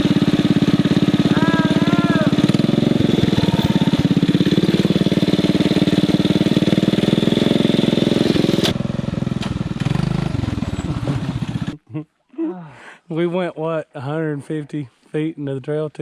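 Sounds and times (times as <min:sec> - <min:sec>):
small engine running: 0:00.0 - 0:11.8.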